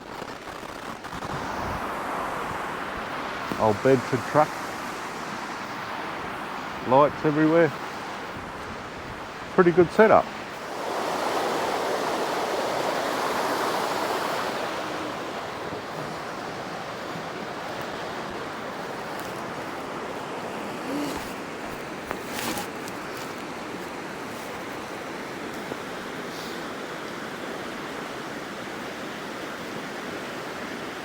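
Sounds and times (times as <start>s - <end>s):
outdoor rushing noise: 0.0s - 23.5s.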